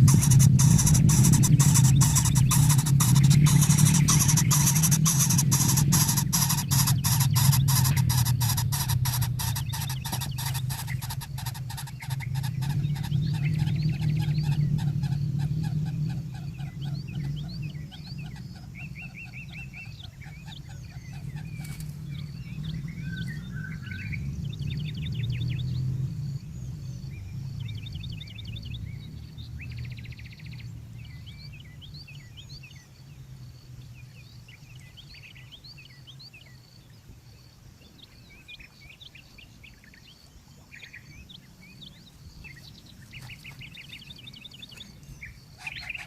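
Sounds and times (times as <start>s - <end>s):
bird clicking notes: 0.0s - 12.5s
high bird chirps: 0.0s - 24.2s, 42.5s - 46.0s
steady low hum: 0.0s - 46.0s.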